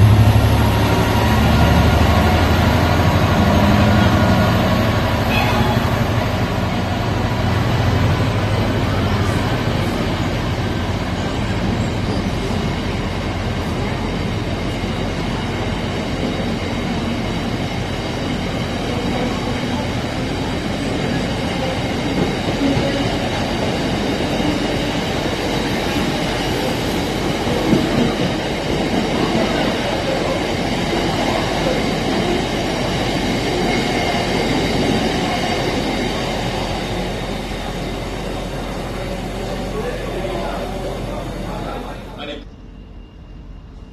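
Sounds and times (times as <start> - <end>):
train wheels rumbling on rail: 0.0 - 42.7
high wheel squeal: 5.3 - 6.2.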